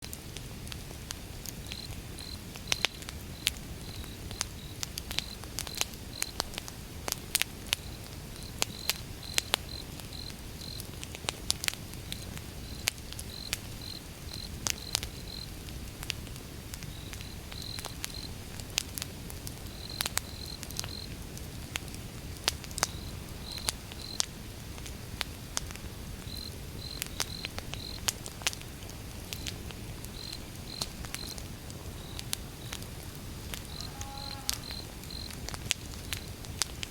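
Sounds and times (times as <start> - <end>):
fire crackling and popping: 0.0 - 36.9
low fire rumble: 0.0 - 36.9
cricket chirping: 1.7 - 6.4, 7.8 - 10.8, 12.2 - 15.5, 16.9 - 18.4, 19.7 - 21.1, 22.9 - 24.2, 26.3 - 28.0, 30.1 - 31.4, 33.6 - 35.4.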